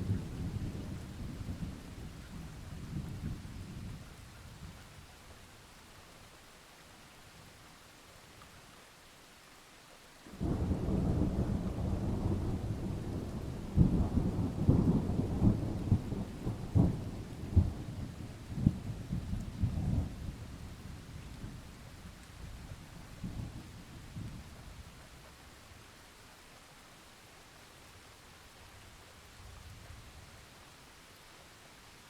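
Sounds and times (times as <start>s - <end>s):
light rain falling: 0.0s - 32.0s
thunder rumbling and cracking: 10.3s - 20.5s.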